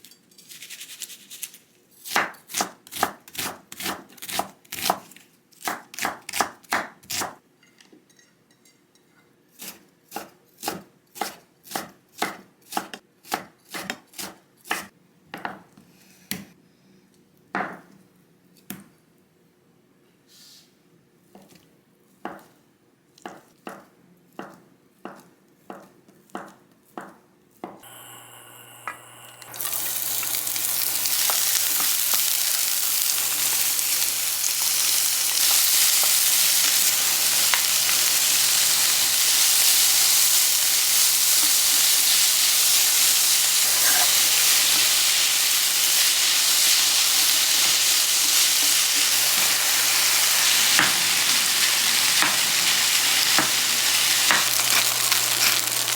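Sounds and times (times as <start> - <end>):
food sizzling in hot pan: 27.8 - 55.9.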